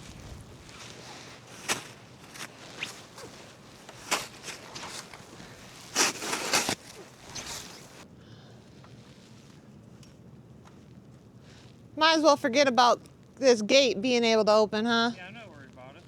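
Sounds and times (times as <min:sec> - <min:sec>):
footsteps crunching in snow: 0:00.0 - 0:08.0.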